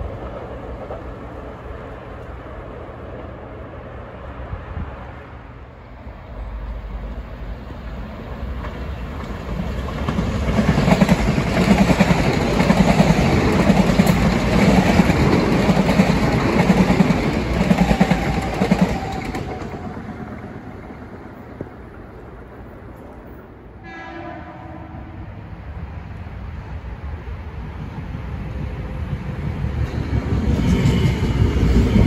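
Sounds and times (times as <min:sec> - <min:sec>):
train passing at speed: 0:00.0 - 0:32.0
wheels clacking over rail joints: 0:07.9 - 0:21.9.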